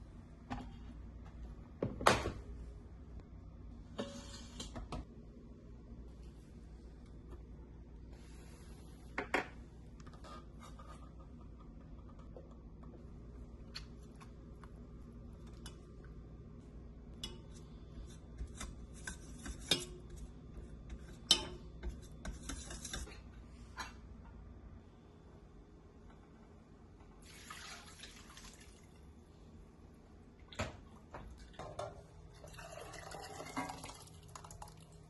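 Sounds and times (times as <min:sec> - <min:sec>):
steady low hum: 0:00.0 - 0:27.2.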